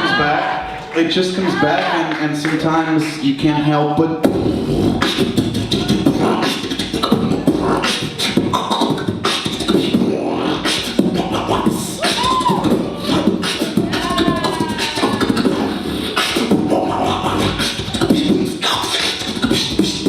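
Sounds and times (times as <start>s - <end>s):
person beatboxing: 1.5s - 20.0s
low buzzing bass: 4.2s - 18.3s.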